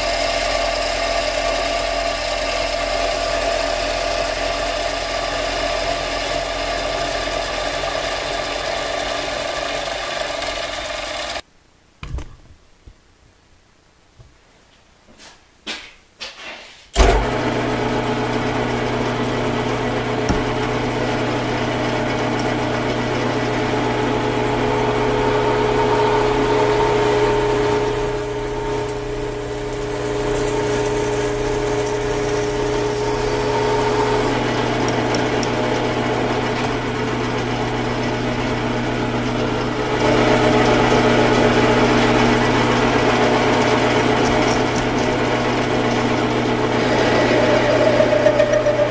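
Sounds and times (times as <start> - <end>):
electric power tool motor: 19.2 - 48.9.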